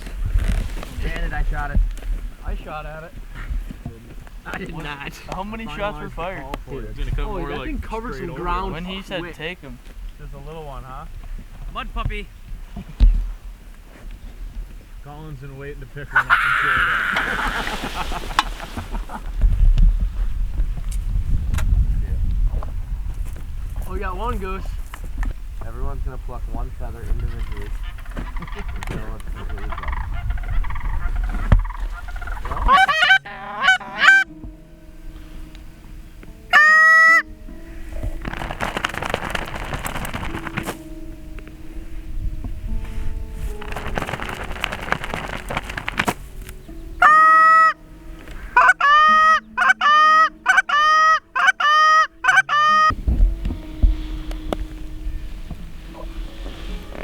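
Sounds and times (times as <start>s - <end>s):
wind noise: 0.0s - 49.6s, 52.1s - 57.0s
goose honking: 16.1s - 19.3s, 27.0s - 34.4s, 36.5s - 40.8s, 47.0s - 52.9s
low steady tone: 33.2s - 36.6s, 52.9s - 57.0s.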